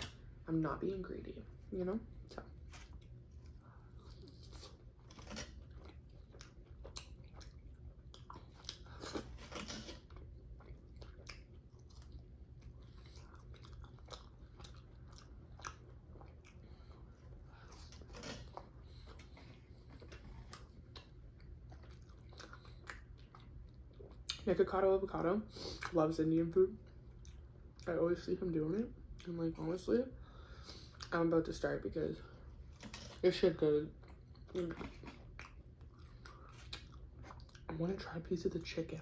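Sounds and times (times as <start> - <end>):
faint low hum: 0.0 - 39.0
person chewing food: 2.1 - 24.5, 26.8 - 27.9, 33.9 - 37.7.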